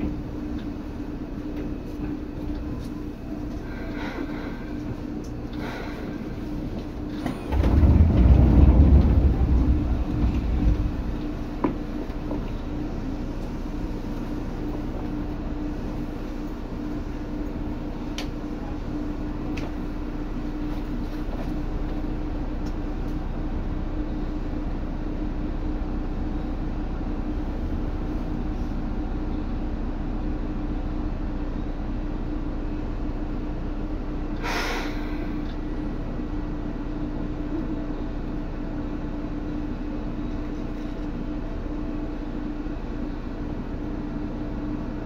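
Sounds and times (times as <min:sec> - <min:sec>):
train interior hum: 0:00.0 - 0:45.0
short burst of hiss: 0:34.4 - 0:35.1.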